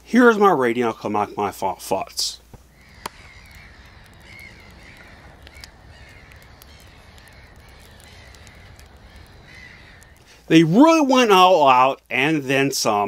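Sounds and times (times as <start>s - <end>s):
soft clicks: 2.5s - 10.3s
birds calling: 2.5s - 10.5s.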